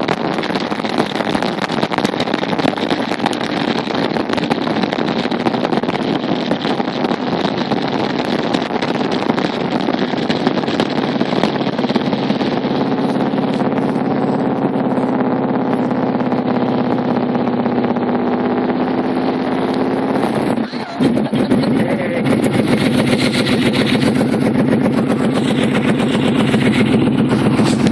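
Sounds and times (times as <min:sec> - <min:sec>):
motorcycle engine: 0:00.0 - 0:27.9
wind rushing over microphone: 0:00.0 - 0:27.9.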